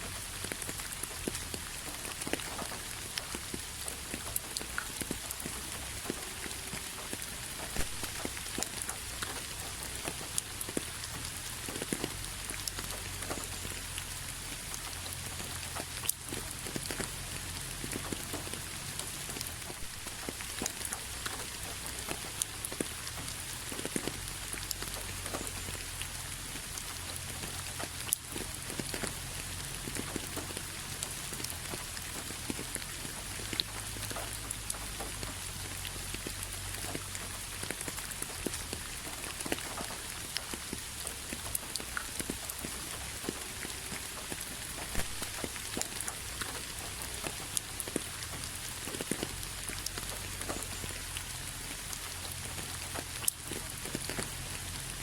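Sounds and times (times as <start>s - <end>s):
raindrops pattering on hard surface: 0.0s - 55.0s.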